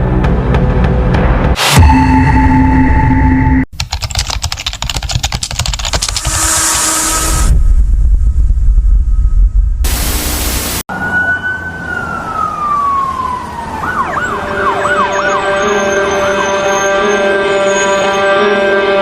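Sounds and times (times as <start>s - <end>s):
emergency vehicle siren: 10.9s - 19.0s.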